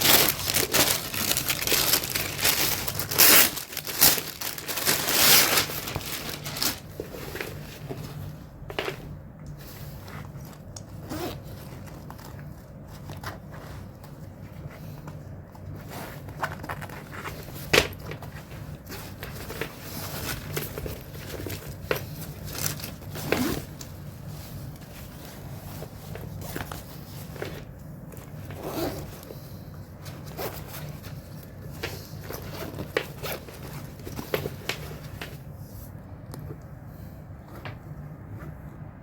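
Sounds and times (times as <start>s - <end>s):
packaging rustling and scraping: 0.0s - 36.0s
steady low hum: 0.0s - 39.0s.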